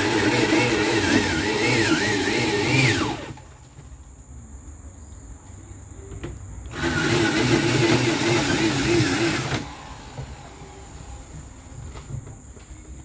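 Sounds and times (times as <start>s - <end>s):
electric drill whining: 0.0s - 3.5s, 6.7s - 11.5s.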